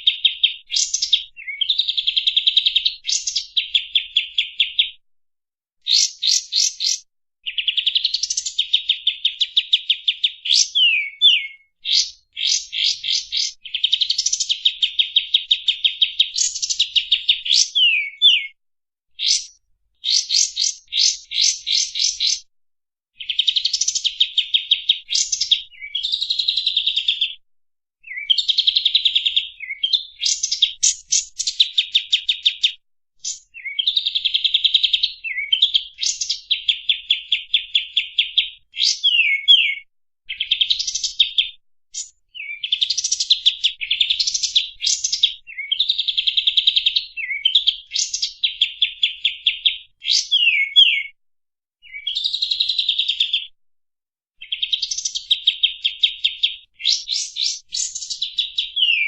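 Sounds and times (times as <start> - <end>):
songbird singing rapid trills: 5.8 - 18.6, 38.8 - 39.8, 56.8 - 59.0.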